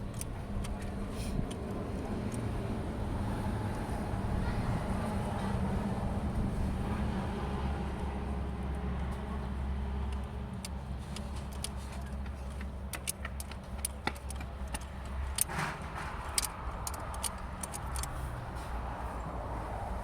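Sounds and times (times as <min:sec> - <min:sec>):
metallic clicks and taps: 0:00.0 - 0:02.5, 0:10.0 - 0:18.2
motor vehicle rumble: 0:00.0 - 0:20.0.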